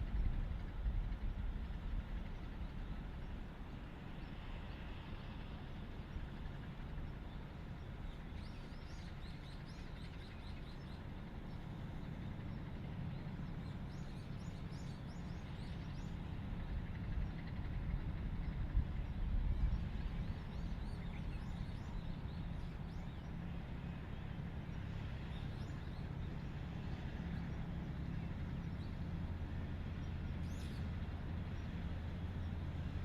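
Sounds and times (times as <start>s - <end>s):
low outdoor rumble: 0.0s - 33.0s
small birds chirping: 18.4s - 29.2s.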